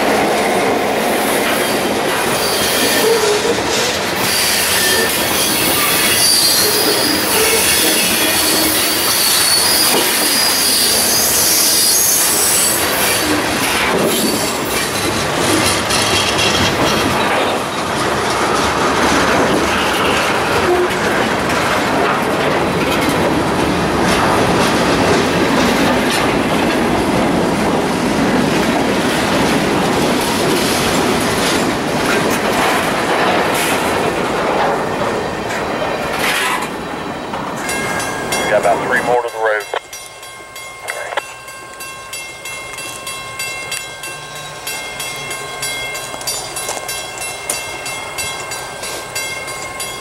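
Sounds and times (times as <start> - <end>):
wheels clacking over rail joints: 0.0 - 39.2
train rolling rumble: 0.0 - 50.0
train wheels squealing on rail: 1.1 - 18.0, 19.7 - 21.2.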